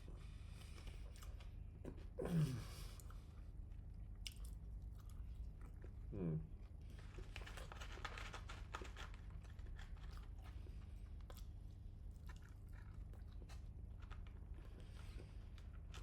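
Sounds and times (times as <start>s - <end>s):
person chewing food: 2.9s - 6.1s, 9.1s - 16.0s.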